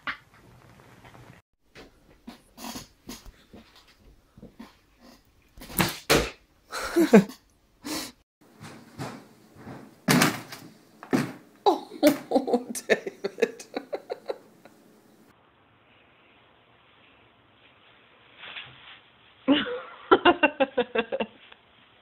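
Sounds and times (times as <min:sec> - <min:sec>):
person laughing: 0:06.7 - 0:07.4, 0:11.7 - 0:14.8, 0:19.5 - 0:21.4.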